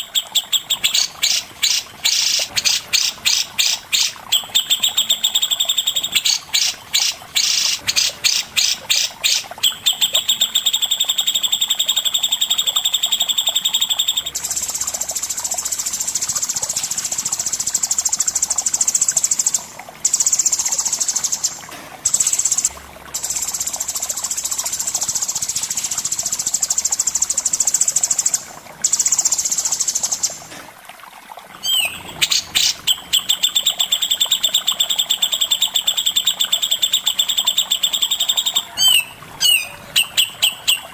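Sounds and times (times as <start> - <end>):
songbirds chattering and trilling: 31.6 - 33.8.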